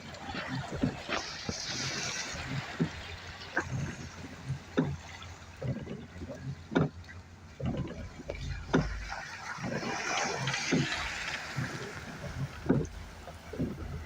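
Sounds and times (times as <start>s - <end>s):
water splashing and sloshing: 0.0s - 14.0s
vehicle low rumble: 2.4s - 14.0s
knocks over bumps: 7.6s - 14.0s.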